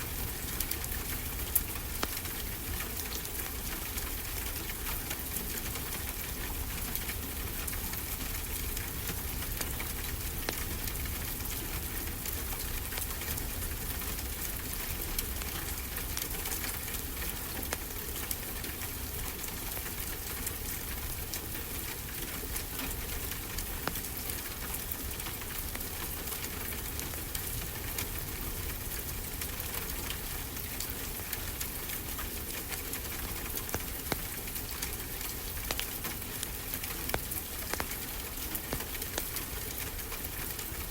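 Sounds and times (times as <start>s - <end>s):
wood fire crackling: 0.3s - 5.4s, 6.1s - 16.9s, 30.2s - 40.9s.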